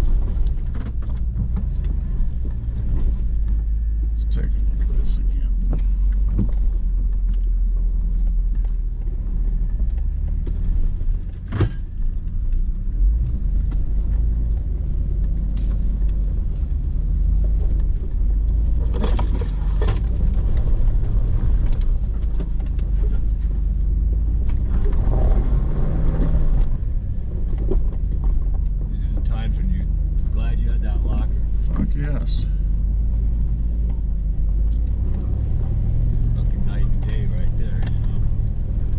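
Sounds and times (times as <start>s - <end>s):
engine low rumble: 0.0s - 38.9s
knocks and scrapes on rocks: 18.8s - 23.3s.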